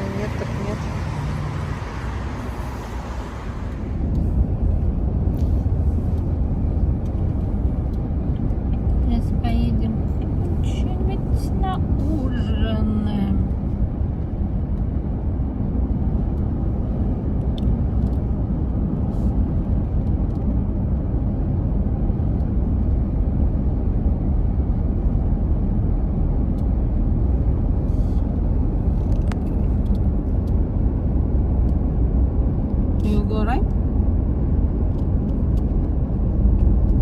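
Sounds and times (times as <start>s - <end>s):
car engine and road noise: 0.0s - 37.0s.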